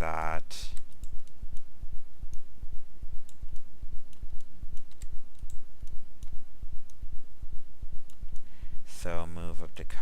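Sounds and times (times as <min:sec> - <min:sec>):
mouse clicks: 0:00.7 - 0:01.7, 0:03.2 - 0:07.0.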